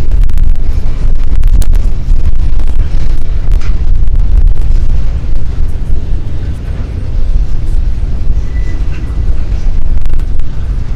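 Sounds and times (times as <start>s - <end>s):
freight train rumbling past: 0.0s - 10.9s
wind buffeting microphone: 0.0s - 10.9s
faint high squeal: 8.3s - 9.6s.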